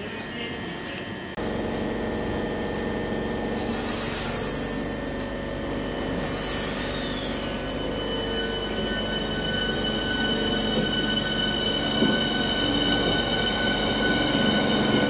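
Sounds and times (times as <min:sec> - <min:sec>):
electric train motors humming: 0:00.0 - 0:15.0
high-pitched wheel squeal: 0:03.6 - 0:15.0.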